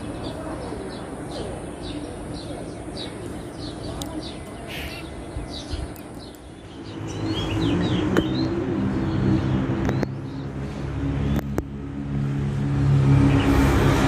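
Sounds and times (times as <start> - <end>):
wild birds chirping: 0.0 - 14.0
motor vehicle engine: 6.2 - 14.0.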